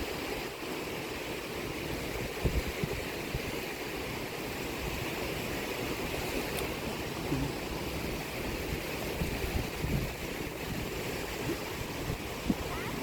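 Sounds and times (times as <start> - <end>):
sea waves washing ashore: 0.0 - 13.0.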